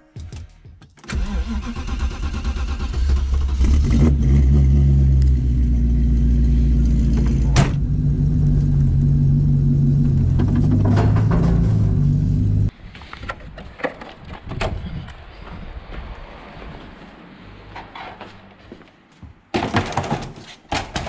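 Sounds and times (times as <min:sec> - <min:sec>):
diesel car engine running: 0:03.3 - 0:12.7.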